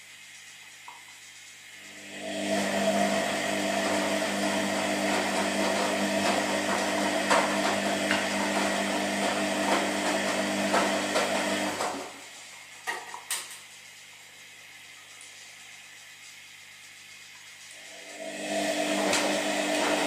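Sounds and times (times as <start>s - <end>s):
washing machine motor whining: 1.7s - 12.4s, 17.7s - 20.0s.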